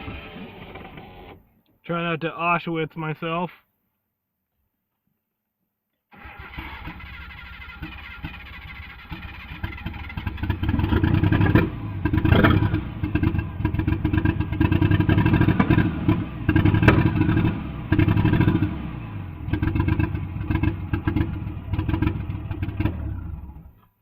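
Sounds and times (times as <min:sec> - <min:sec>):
car engine running roughly: 0:06.2 - 0:23.7.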